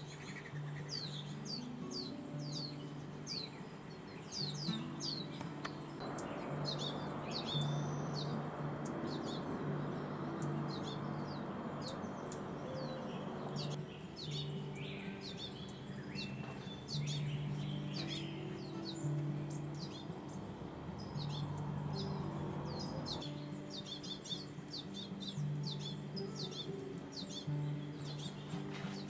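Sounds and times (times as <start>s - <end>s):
small birds chirping: 0.0s - 29.0s
soft background music: 0.0s - 29.0s
soft rushing noise: 5.7s - 13.8s.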